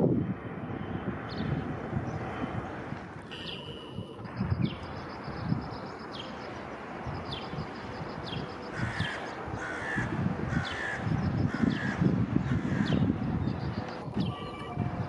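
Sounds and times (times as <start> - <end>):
birds calling high notes: 3.2 - 15.0
crow cawing: 8.7 - 13.0.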